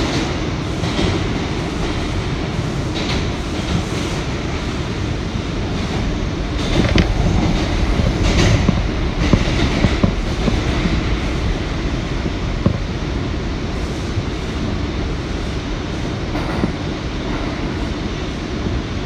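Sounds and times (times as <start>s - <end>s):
wheels rumbling on rail: 0.0s - 19.0s
wheels clicking over rail joints: 5.7s - 13.0s.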